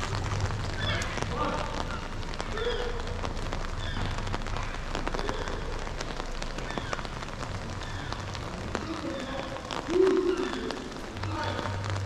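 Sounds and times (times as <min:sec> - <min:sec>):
rain falling on street: 0:00.0 - 0:12.0
raindrops tapping: 0:00.0 - 0:12.0.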